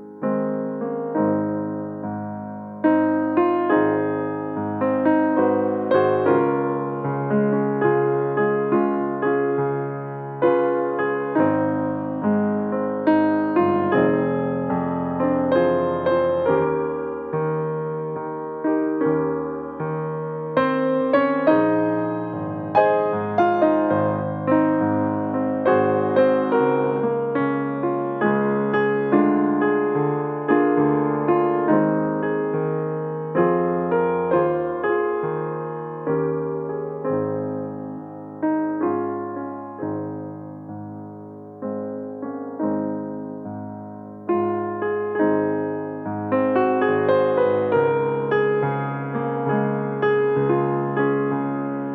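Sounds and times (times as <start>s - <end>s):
slow gentle piano chords: 0.0s - 51.9s.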